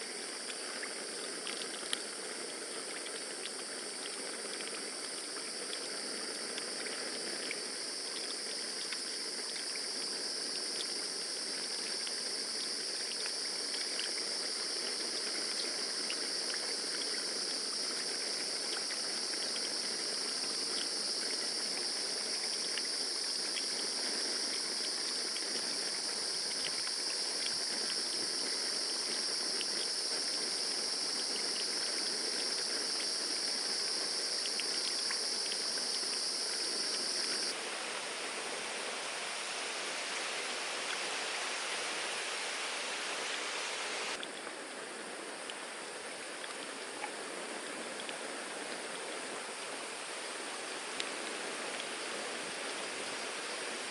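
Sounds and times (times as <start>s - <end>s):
faint scattered ticks: 0.0s - 37.6s
rushing water-like noise: 0.0s - 53.9s
high-pitched insect drone: 27.9s - 44.2s.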